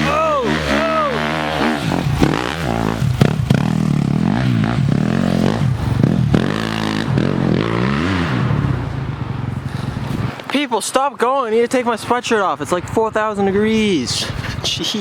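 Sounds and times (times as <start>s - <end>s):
dirt bike engine revving: 0.0s - 10.3s.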